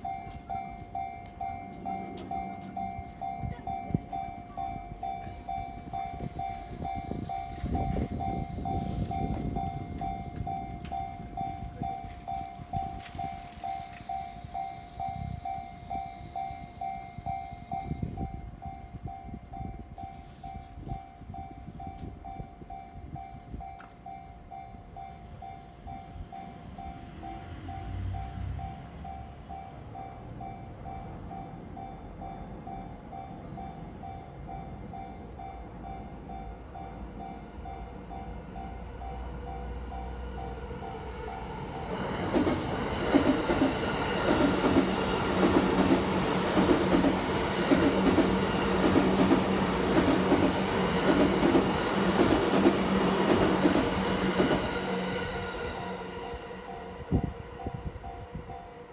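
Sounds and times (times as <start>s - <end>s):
electric train humming: 0.0s - 58.9s
level crossing warning bell: 0.0s - 58.9s
wheels clacking: 7.0s - 17.0s, 42.2s - 54.7s.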